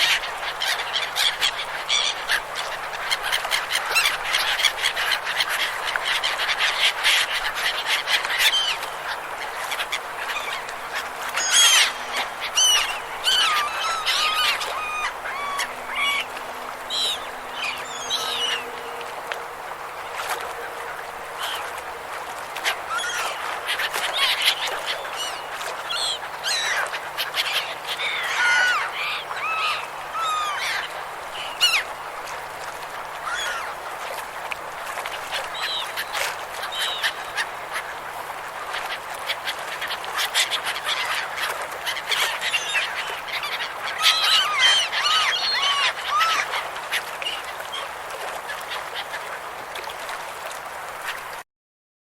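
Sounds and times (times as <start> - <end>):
gulls squawking: 0.0 - 18.9, 20.0 - 31.9, 33.2 - 33.8, 39.3 - 47.5.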